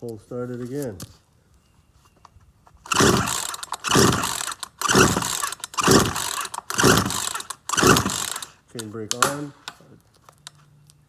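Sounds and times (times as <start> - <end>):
chainsaw recoil starter pulls: 2.9 - 9.5.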